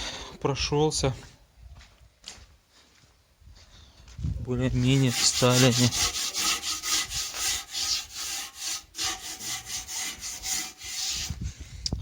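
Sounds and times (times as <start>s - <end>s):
hand tool scraping a surface: 4.8s - 11.6s.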